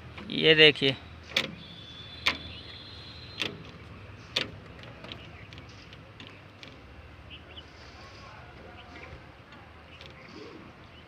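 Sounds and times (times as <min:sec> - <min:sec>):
gear lever clicks: 0:01.2 - 0:01.6, 0:02.2 - 0:02.6, 0:03.3 - 0:06.9.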